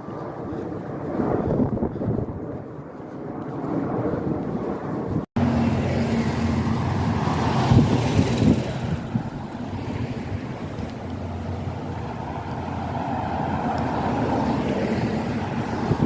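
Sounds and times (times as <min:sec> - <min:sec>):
engine hum: 0:05.1 - 0:16.0
vehicle driving past: 0:05.4 - 0:16.0.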